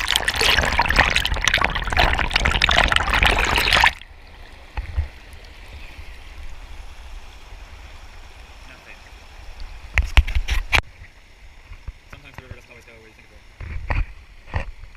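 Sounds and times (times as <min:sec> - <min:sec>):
water splashing and bubbling: 0:00.0 - 0:07.6.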